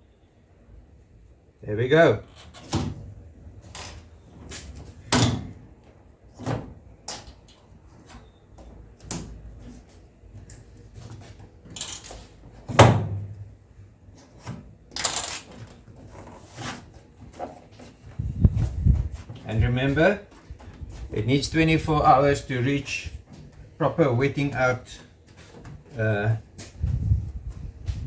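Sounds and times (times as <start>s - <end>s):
scraping rustle: 15.6s - 23.7s.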